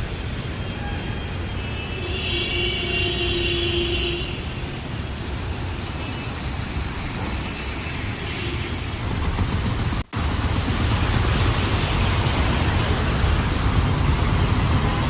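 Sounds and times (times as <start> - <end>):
water rushing with low rumble: 4.3 - 15.0.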